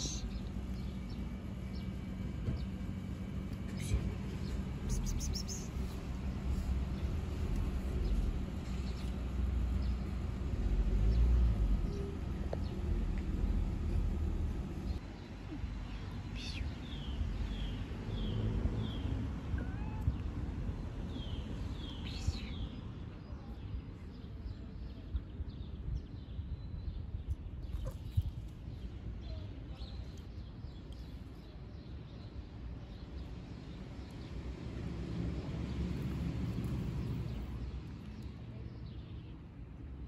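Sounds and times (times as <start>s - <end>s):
steady low rumble: 0.0s - 40.0s
bird chirping: 3.7s - 6.0s.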